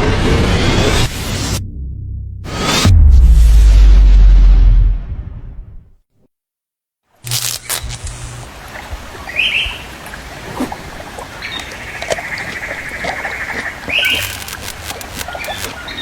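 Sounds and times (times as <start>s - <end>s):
bird squawk: 9.3s - 10.0s, 11.3s - 16.0s
ticks and crackles: 11.6s - 16.0s
bird rattling trill: 13.9s - 16.0s.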